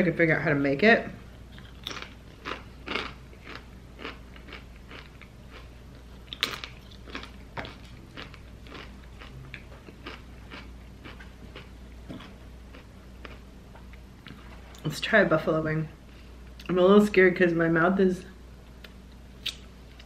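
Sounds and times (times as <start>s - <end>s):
person chewing crunchy chips: 1.4s - 13.5s.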